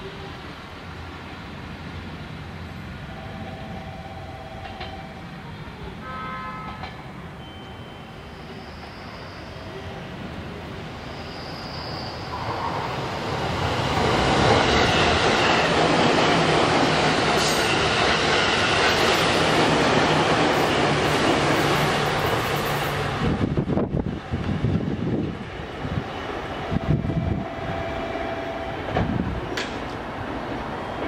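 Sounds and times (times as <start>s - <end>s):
train wheels rushing on rails: 6.6s - 31.0s.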